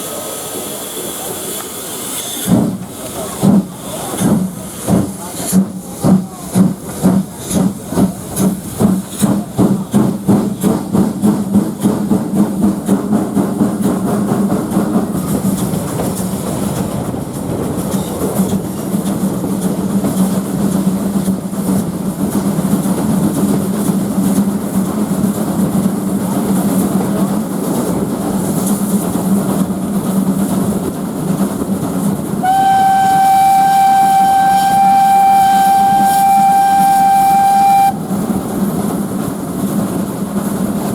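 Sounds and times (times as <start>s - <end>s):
steam locomotive exhaust beats: 0.0s - 40.9s
steam whistle: 32.4s - 38.2s.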